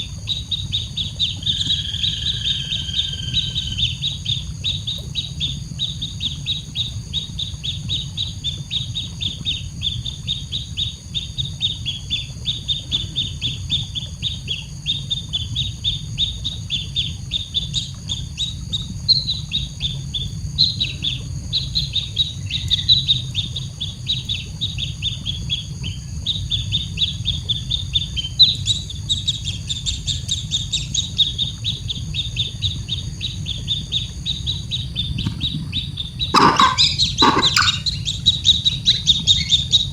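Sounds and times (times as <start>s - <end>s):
baby bird chirping: 36.4s - 38.0s.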